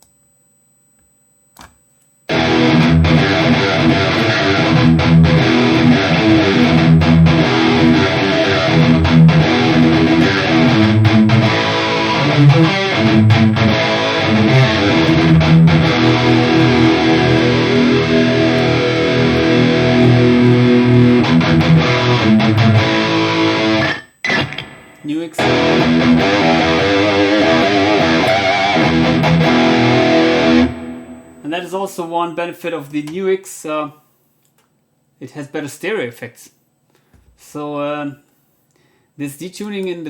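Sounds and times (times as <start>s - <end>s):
electric guitar with detune effect: 2.3s - 32.0s.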